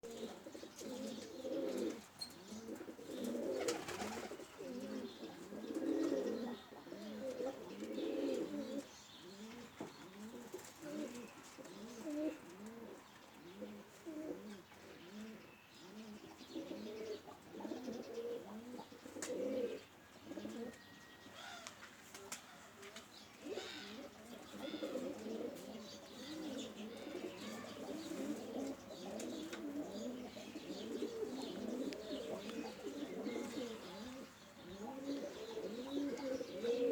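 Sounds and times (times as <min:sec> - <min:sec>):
pigeons cooing: 0:00.0 - 0:36.9.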